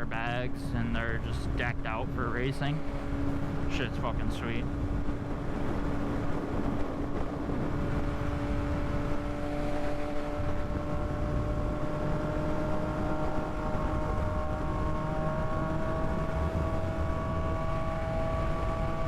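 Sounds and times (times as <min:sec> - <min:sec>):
motorcycle engine: 0:00.0 - 0:19.0
wind rumble on microphone: 0:00.0 - 0:19.0.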